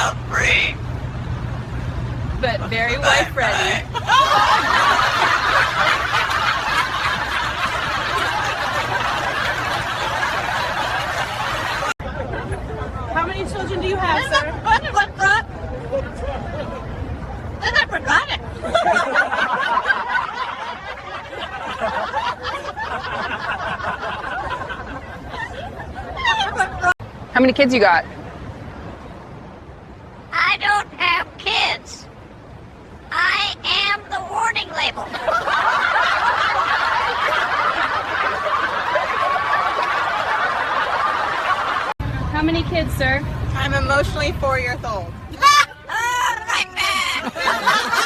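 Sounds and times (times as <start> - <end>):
people laughing and snickering: 3.6 - 13.0, 17.6 - 27.0, 35.0 - 42.0, 45.4 - 48.0.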